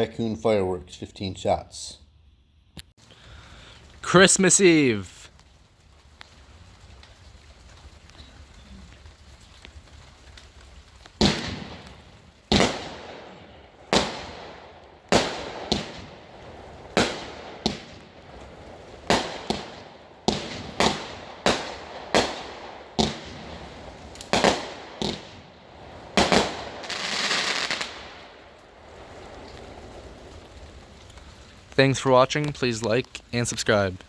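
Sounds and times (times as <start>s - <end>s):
firework cake bangs: 11.2s - 28.2s.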